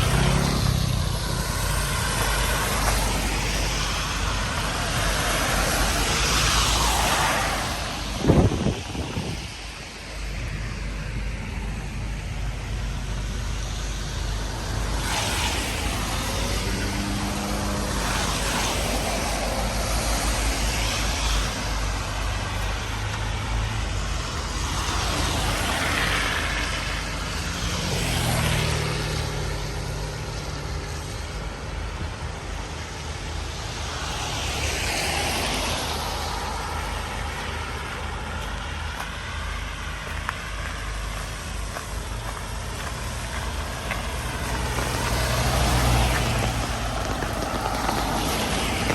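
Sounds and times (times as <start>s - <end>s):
heavy vehicle engine hum: 0.0s - 48.9s
vehicles passing: 0.0s - 48.9s.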